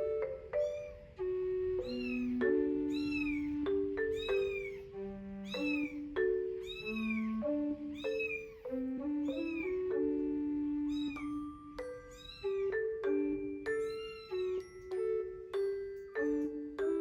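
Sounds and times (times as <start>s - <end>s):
gentle mallet melody: 0.0s - 17.0s
kitten meowing: 0.6s - 1.1s, 1.8s - 10.2s, 10.8s - 12.9s, 13.7s - 14.9s.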